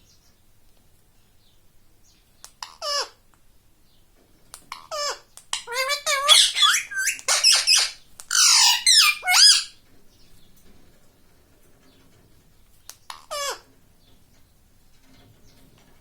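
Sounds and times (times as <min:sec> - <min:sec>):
parrot squawking and chattering: 0:04.8 - 0:09.8.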